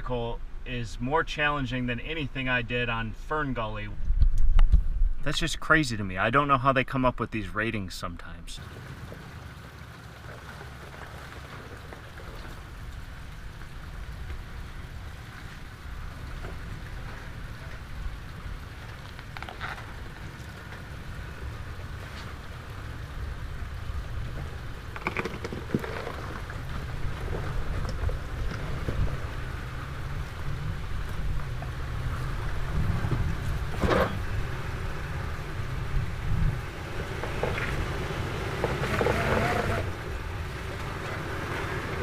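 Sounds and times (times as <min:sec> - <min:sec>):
vehicle rolling over dirt trail: 0:08.6 - 0:42.0.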